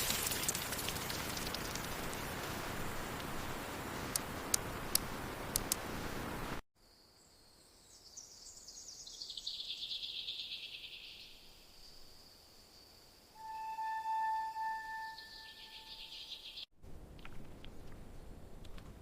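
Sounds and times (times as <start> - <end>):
heavy rain hiss: 0.0 - 6.6.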